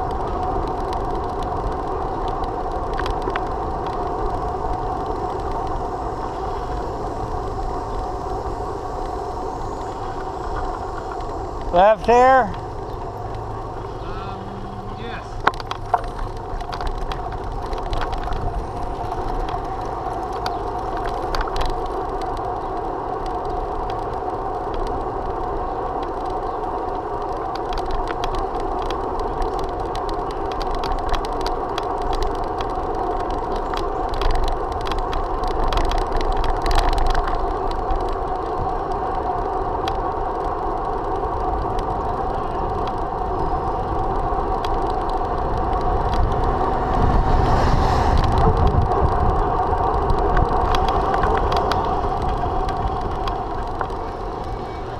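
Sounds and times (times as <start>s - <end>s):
small clicks and rattles: 0.0s - 47.4s, 48.0s - 54.9s
bicycle rolling on road: 0.0s - 54.9s
wind rumbling on microphone: 0.0s - 54.9s.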